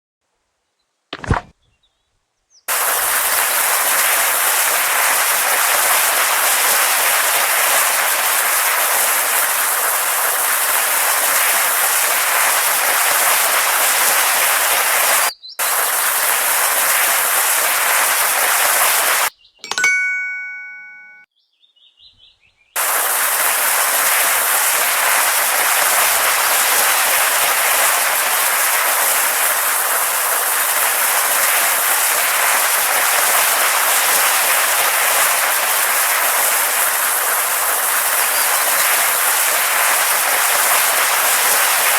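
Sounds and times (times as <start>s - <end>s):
loud steady hiss: 2.7s - 19.3s, 22.8s - 41.9s
bell-like chime: 19.6s - 21.3s.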